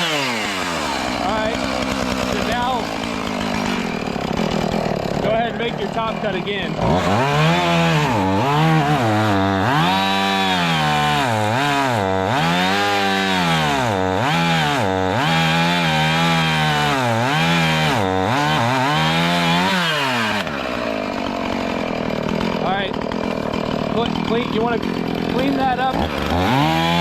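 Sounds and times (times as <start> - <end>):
chainsaw cutting wood: 0.0 - 27.0.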